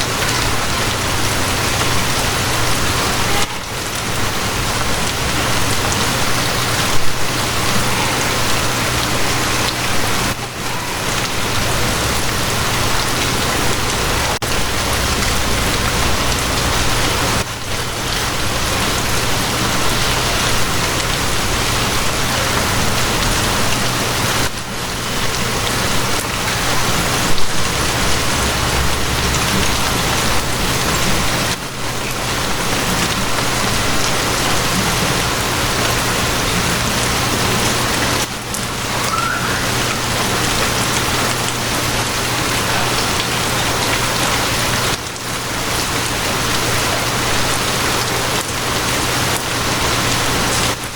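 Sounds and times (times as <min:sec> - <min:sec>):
steady rain falling: 0:00.0 - 0:50.9
low rumble: 0:14.4 - 0:17.4.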